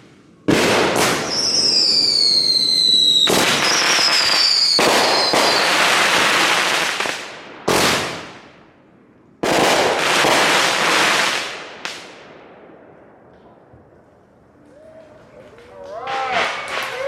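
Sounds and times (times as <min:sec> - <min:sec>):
firework bangs: 0:00.0 - 0:08.6, 0:09.4 - 0:12.9, 0:16.1 - 0:17.0
fireworks crackling: 0:00.0 - 0:08.6, 0:09.4 - 0:17.0.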